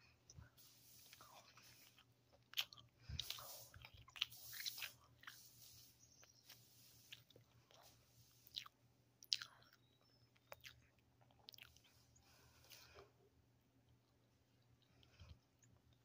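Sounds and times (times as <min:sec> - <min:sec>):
person chewing: 0:00.2 - 0:13.1
soft mouth clicks and smacks: 0:07.1 - 0:11.9.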